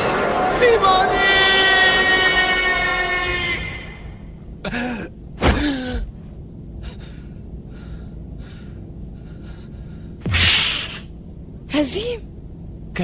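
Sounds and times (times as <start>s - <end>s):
background music: 0.0s - 4.1s
faint breathing: 6.7s - 10.3s.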